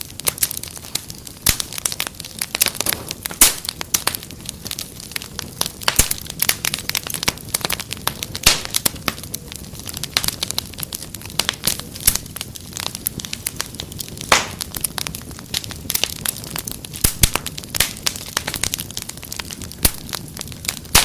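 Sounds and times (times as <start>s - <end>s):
fire snaps and pops: 0.0s - 21.0s
wood fire crackling: 0.0s - 21.0s.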